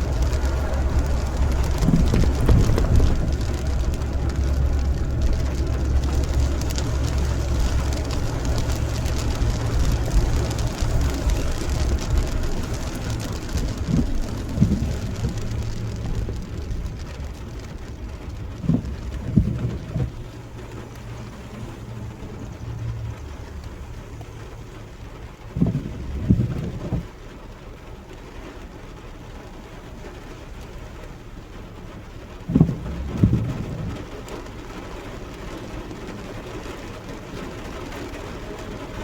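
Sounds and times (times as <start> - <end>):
short low knocks: 0.0 - 23.9, 32.4 - 34.2
deep low rumble: 0.0 - 27.3, 32.4 - 36.3
steady rain: 0.0 - 39.0.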